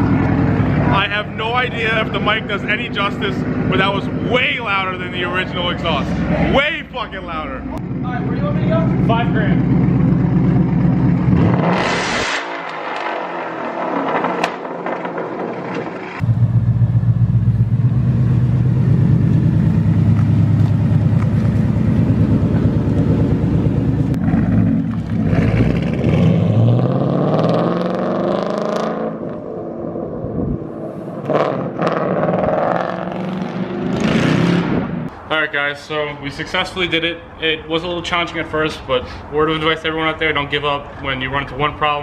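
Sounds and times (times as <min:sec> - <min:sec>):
loud car exhaust revving: 0:07.8 - 0:15.0, 0:16.2 - 0:35.1.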